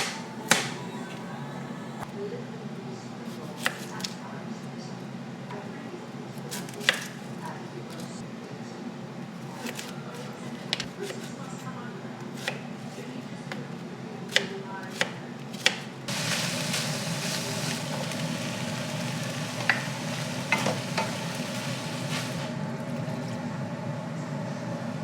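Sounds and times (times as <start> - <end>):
utensil knocking: 16.1 - 22.5
food sizzling in a frying pan: 16.1 - 22.6.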